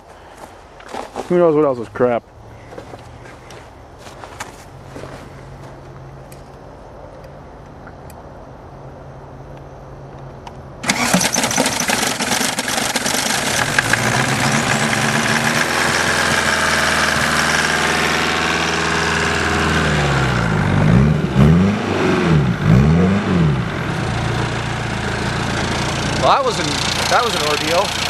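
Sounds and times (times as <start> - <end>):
diesel engine cranking and running: 10.8 - 28.0.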